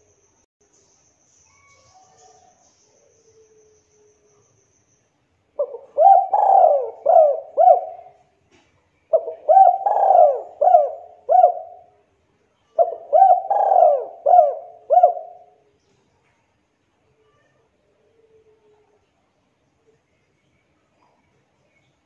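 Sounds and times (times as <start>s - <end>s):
dove cooing: 5.6s - 8.2s, 9.1s - 11.9s, 12.8s - 15.6s.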